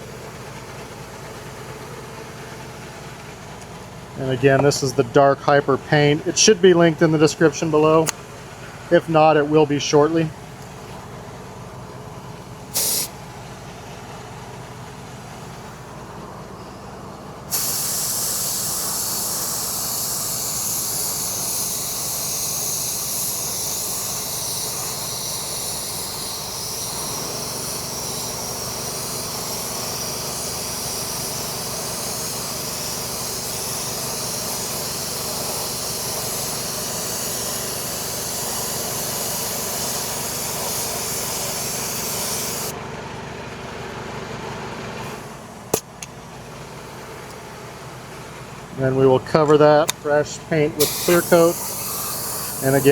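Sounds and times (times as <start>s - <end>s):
steady background hum: 0.0s - 52.9s
paint spray hissing: 12.7s - 13.2s, 17.5s - 42.7s, 50.8s - 52.9s.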